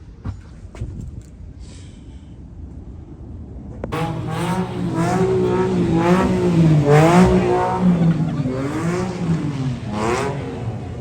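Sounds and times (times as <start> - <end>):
vehicle engine revving: 3.9 - 11.0.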